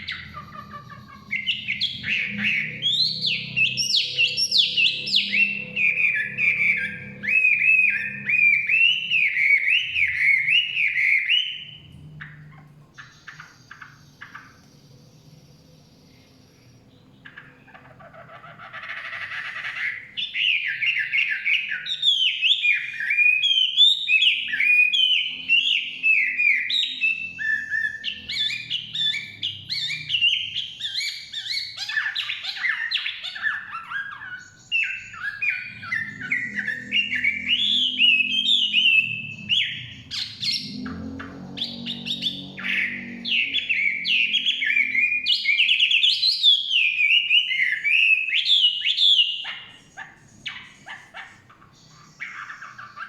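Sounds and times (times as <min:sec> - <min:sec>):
bird singing whistled phrases: 0:00.0 - 0:51.0
faint low rumble: 0:35.6 - 0:44.7.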